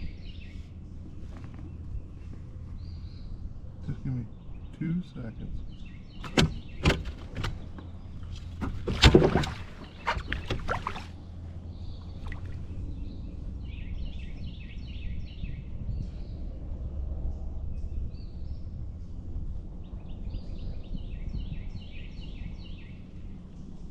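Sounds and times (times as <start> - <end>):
small birds chirping: 0.0 - 16.7, 17.4 - 23.9
steady low rumble: 0.0 - 23.9
gear clattering in a kayak: 6.2 - 11.2.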